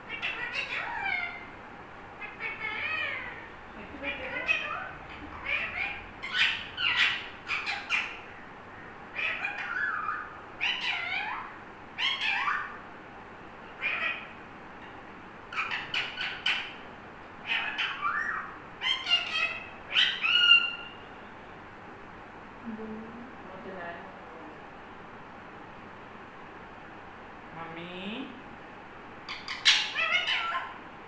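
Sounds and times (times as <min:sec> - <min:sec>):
parrot calling: 0:00.0 - 0:12.9, 0:13.6 - 0:21.2, 0:29.2 - 0:30.9.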